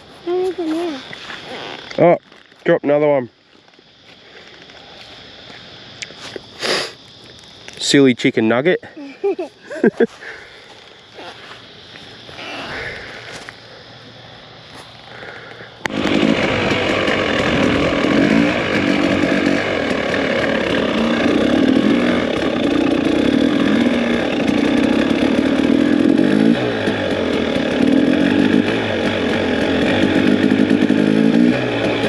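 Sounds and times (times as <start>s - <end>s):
two-stroke dirt bike engine revving: 15.8s - 32.0s.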